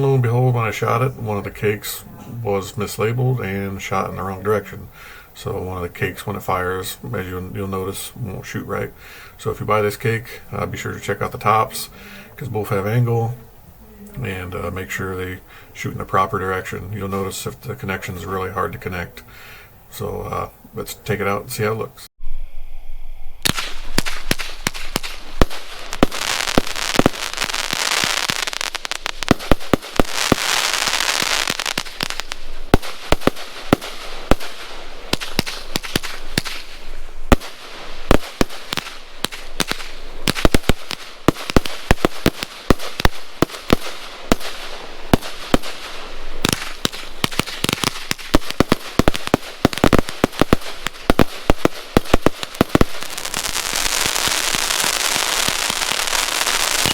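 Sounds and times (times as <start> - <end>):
firework bangs and pops: 23.4 - 56.9
firework hissing: 23.4 - 56.9.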